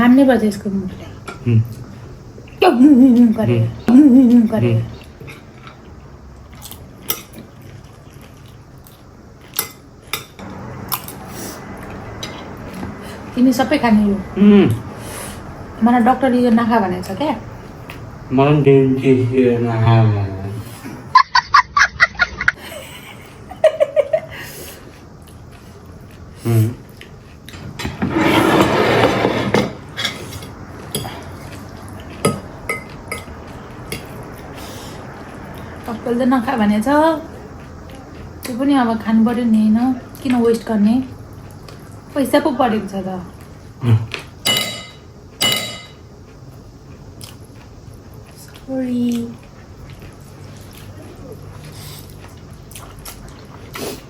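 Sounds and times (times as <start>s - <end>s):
cutlery clinking against dishes: 7.0s - 7.4s, 9.5s - 11.3s, 27.5s - 31.3s, 32.2s - 34.1s, 44.4s - 46.0s.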